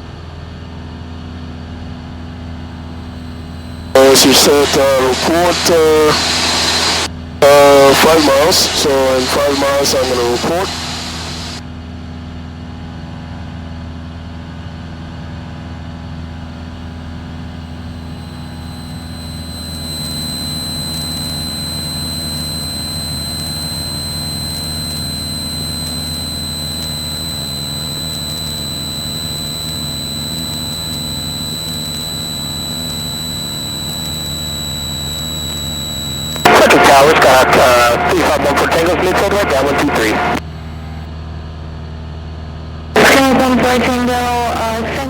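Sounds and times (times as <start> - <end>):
steady high whine: 1.8 - 11.6, 16.4 - 41.1.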